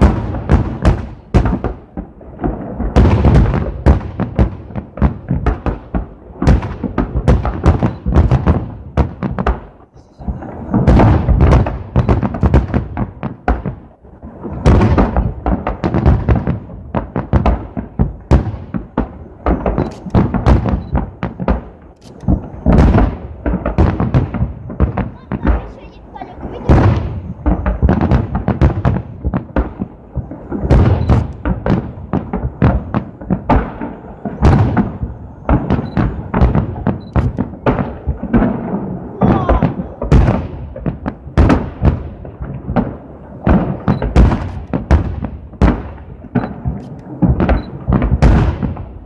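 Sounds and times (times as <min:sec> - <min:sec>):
fireworks booming overhead: 0:00.0 - 0:49.0.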